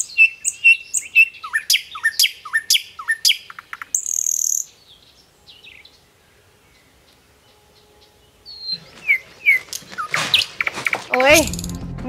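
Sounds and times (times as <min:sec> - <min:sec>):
swooping bird calls: 0:00.0 - 0:11.4
songbird high chirps: 0:00.0 - 0:11.7
harsh rasping bird call: 0:08.5 - 0:11.3.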